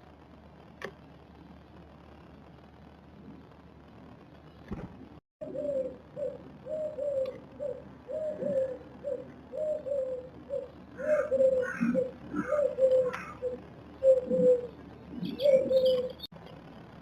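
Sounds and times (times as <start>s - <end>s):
dove cooing: 5.4s - 16.3s.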